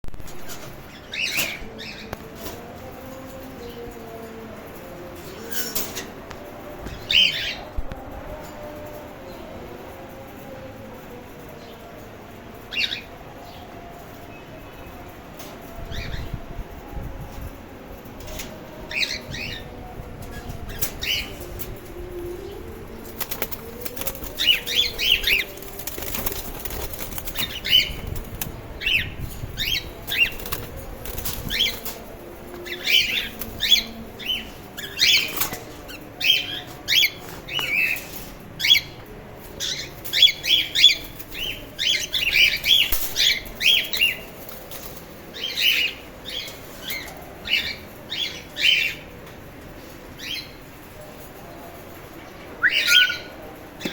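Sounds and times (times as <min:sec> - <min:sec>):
wings flapping: 0:23.1 - 0:28.6, 0:30.1 - 0:32.0.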